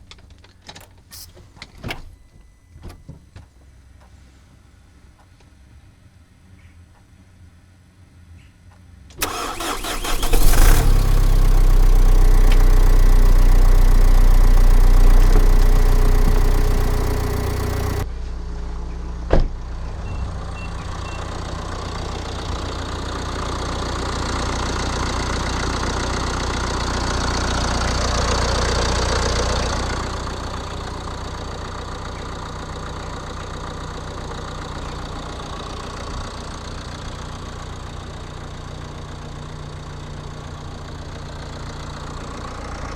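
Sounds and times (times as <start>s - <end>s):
diesel engine starting and idling: 9.2s - 42.9s.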